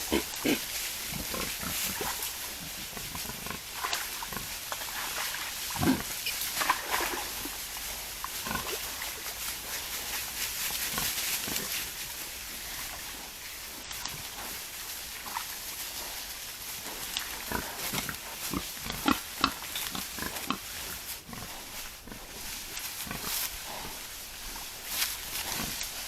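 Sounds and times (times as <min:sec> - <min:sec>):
wild boars grunting: 0:00.0 - 0:07.6, 0:14.0 - 0:25.9.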